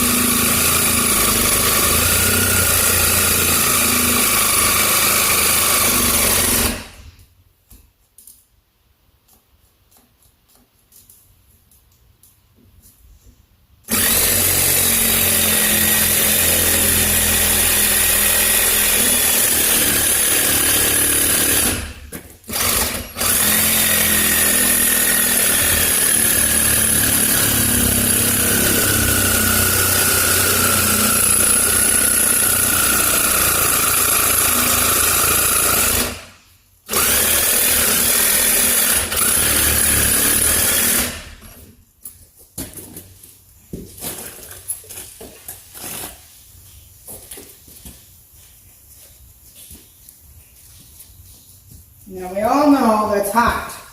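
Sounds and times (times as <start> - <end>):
power tool cutting metal: 22.5 - 36.2.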